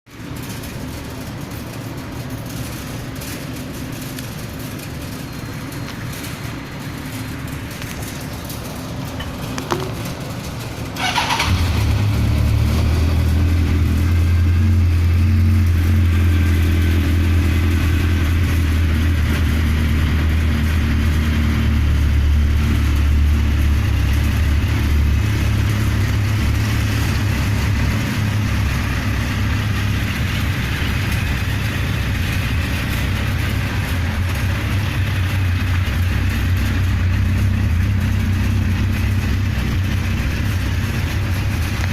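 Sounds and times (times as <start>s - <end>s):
motorcycle engine idling: 0.2s - 41.9s
motorcycle starter cranking: 7.2s - 12.4s.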